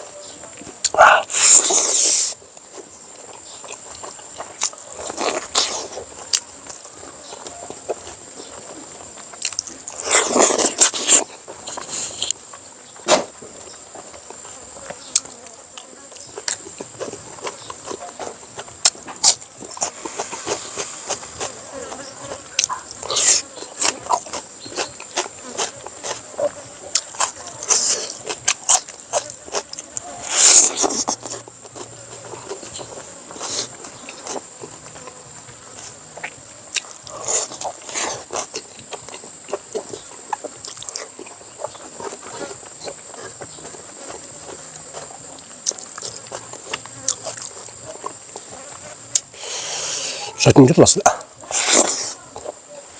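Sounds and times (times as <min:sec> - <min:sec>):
slurp: 0:00.8 - 0:02.4, 0:09.5 - 0:12.3, 0:51.5 - 0:52.2
wet chewing clicks and smacks: 0:03.2 - 0:08.2, 0:09.0 - 0:12.4, 0:15.1 - 0:35.2, 0:36.2 - 0:49.4.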